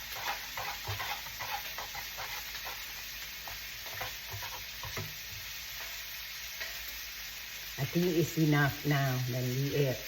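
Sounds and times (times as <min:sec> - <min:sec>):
utensil scraping a pan: 0:00.0 - 0:07.0
caramel sizzling in a frying pan: 0:00.0 - 0:10.0.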